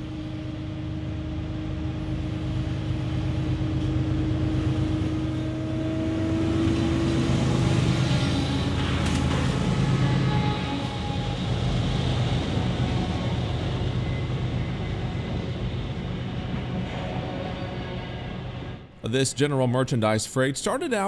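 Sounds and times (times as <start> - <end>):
locomotive engine drone: 0.0 - 19.1
wheel and rail clatter: 6.4 - 17.8.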